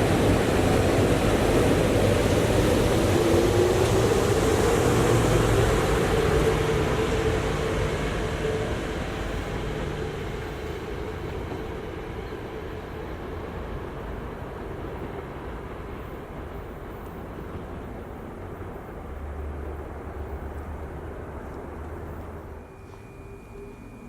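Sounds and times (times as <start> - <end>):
electric train passing: 0.0 - 24.0.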